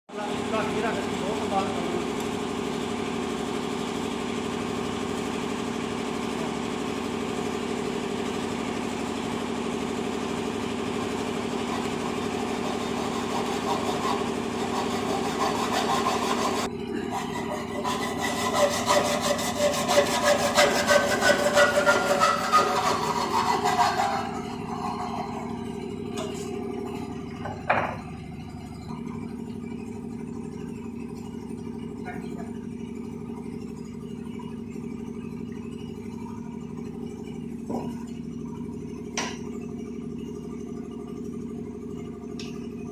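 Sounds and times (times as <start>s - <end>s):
motor humming: 0.2s - 39.4s
rhythmic sawing rasp: 4.8s - 26.5s.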